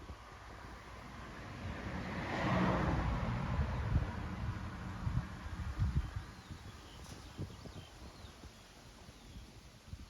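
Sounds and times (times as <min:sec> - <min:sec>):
wind rumble on microphone: 0:00.0 - 0:10.0
faint birdsong whistles: 0:05.8 - 0:09.7.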